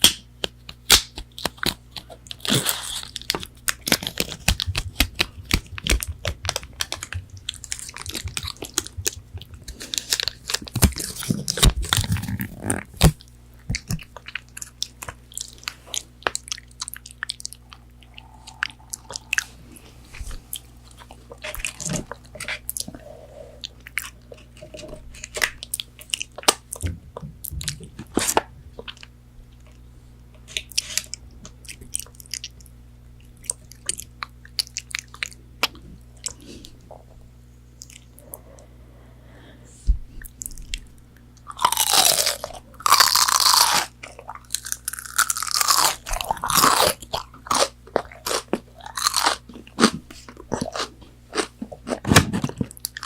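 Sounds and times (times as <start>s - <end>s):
crispy food crunching: 0.0s - 23.0s, 23.6s - 26.8s, 30.4s - 36.4s, 40.2s - 53.0s
faint steady hum: 0.0s - 53.0s
chewing: 13.7s - 26.9s, 30.5s - 37.2s, 37.8s - 38.7s, 40.2s - 53.0s.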